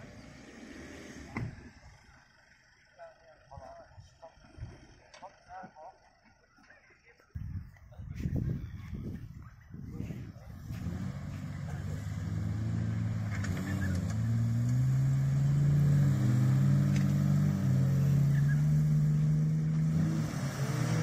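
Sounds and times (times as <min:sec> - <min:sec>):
engine revving under load: 0:00.0 - 0:02.0, 0:10.0 - 0:21.0.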